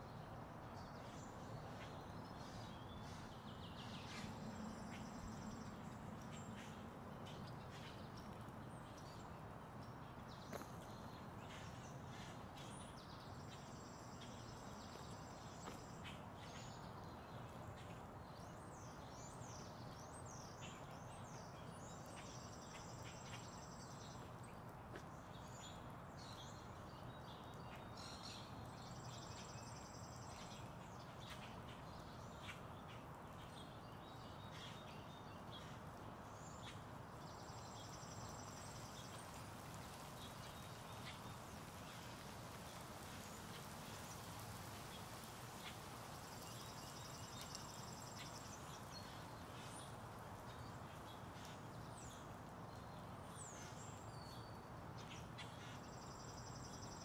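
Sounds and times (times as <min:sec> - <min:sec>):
quiet outdoor background hiss: 0:00.0 - 0:57.0.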